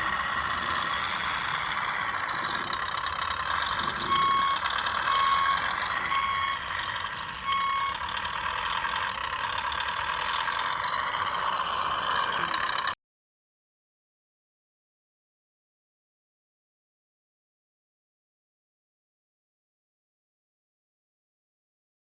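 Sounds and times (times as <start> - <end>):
reversing beeper: 0.0 - 8.6.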